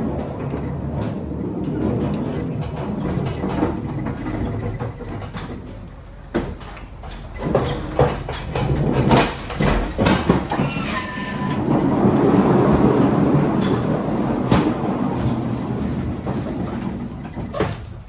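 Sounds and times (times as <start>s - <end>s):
steel wheels rolling and rattling: 0.0s - 18.0s
pallet jack clanks and knocks: 0.1s - 18.0s
pallet jack squeal: 10.5s - 11.7s.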